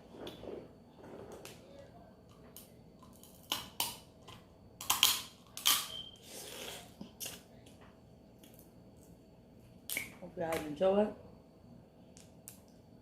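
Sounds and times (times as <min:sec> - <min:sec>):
crab shells cracking: 0:02.6 - 0:04.0, 0:04.8 - 0:05.9.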